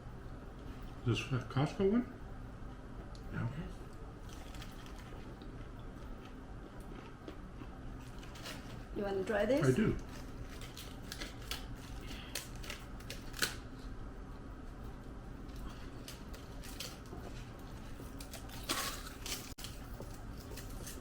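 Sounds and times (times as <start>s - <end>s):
steady low hum: 0.0s - 21.0s
eating clicks and crunches: 3.9s - 8.9s, 10.0s - 13.7s.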